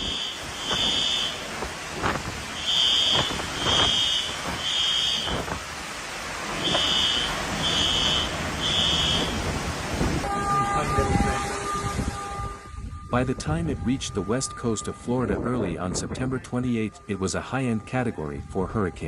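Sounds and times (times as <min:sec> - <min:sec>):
smoke alarm beeping: 0:00.0 - 0:01.4, 0:02.6 - 0:05.4
rain: 0:00.0 - 0:13.1
wind: 0:00.0 - 0:19.0.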